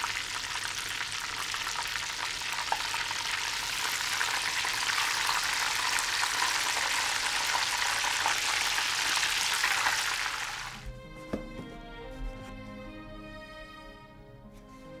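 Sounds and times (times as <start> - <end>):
food sizzling in a pan: 0.0 - 10.9
music with sustained notes: 10.8 - 15.0.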